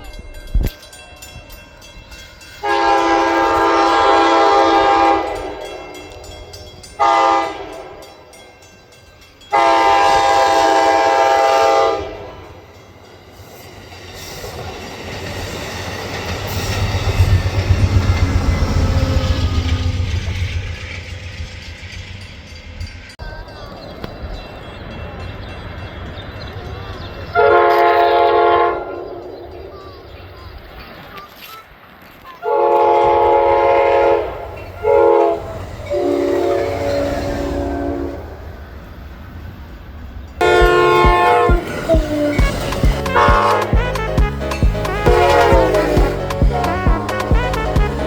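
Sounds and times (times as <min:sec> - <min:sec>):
train passing with low rumble: 0:00.0 - 0:48.0
train horn blasts: 0:02.6 - 0:06.2, 0:07.0 - 0:08.3, 0:09.5 - 0:12.6, 0:27.3 - 0:29.3, 0:32.4 - 0:38.4, 0:40.4 - 0:48.0
wheels clacking over rail joints: 0:12.4 - 0:28.4, 0:29.1 - 0:48.0.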